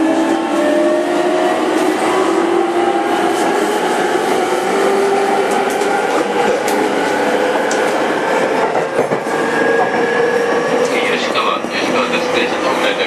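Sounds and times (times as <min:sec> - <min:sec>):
train rail and wheel noise: 0:00.0 - 0:13.0.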